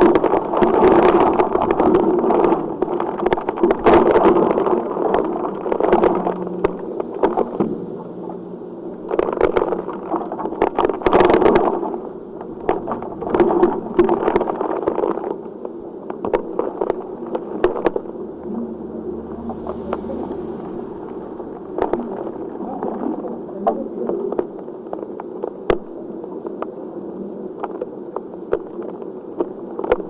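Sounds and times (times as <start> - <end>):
heavy rain pouring and splashing: 16.3 - 23.7.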